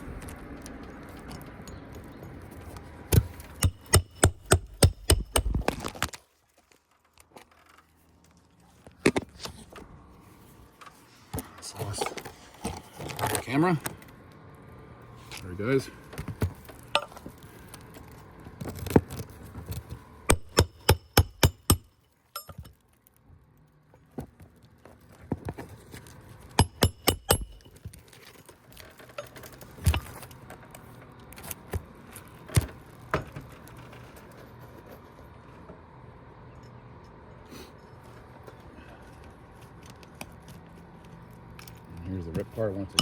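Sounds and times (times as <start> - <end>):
hammer tapping roofing nail: 3.1 - 5.7, 20.3 - 21.9, 26.6 - 27.6.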